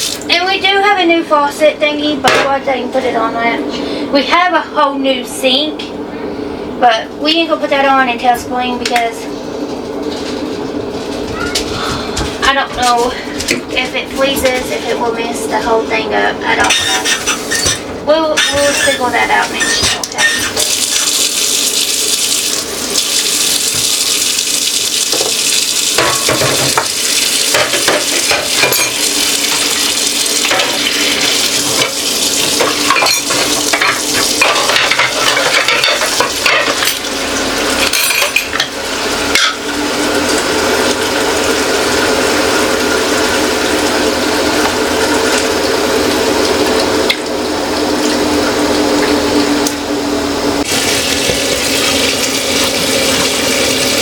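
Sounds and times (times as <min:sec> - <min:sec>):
tap water running into sink: 0:00.0 - 0:00.3, 0:19.5 - 0:37.5, 0:50.6 - 0:54.0
dishes clattering and clinking: 0:16.6 - 0:21.2, 0:26.0 - 0:29.7, 0:30.4 - 0:31.1, 0:31.7 - 0:37.0, 0:37.8 - 0:38.7.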